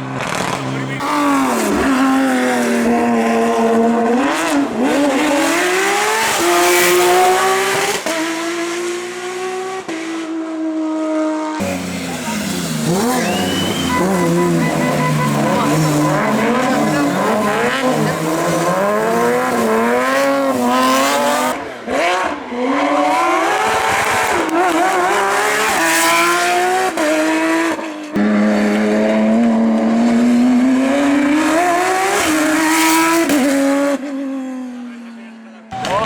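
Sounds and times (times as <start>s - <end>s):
racing car engines revving: 0.0s - 36.0s.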